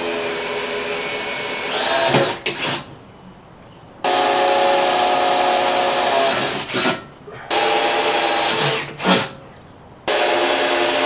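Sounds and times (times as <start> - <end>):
power tool motor running: 4.0 - 9.3, 10.1 - 11.0.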